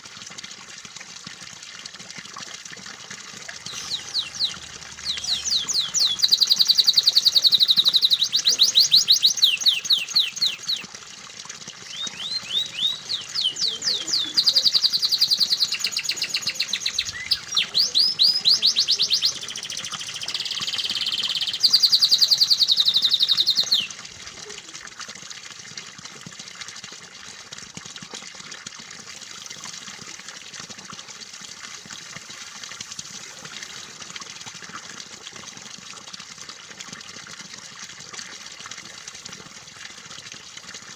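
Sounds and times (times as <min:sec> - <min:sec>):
running water: 0:00.0 - 0:40.9
canary singing trills: 0:03.7 - 0:10.8, 0:11.9 - 0:24.0.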